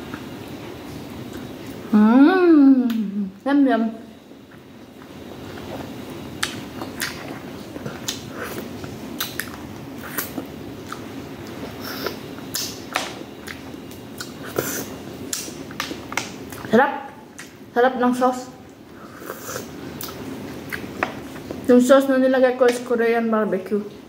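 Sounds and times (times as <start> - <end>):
wet chewing and mouth smacks: 5.0 - 16.7.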